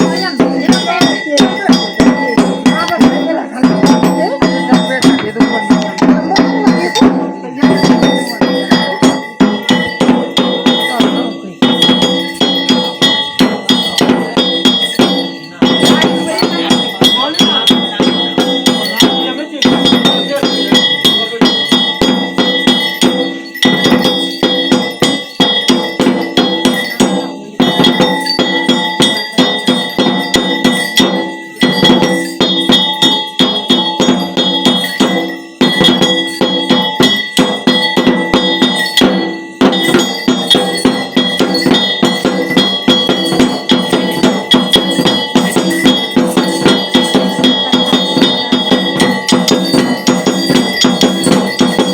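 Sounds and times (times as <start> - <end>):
metal bells rung rapidly: 0.0 - 51.9.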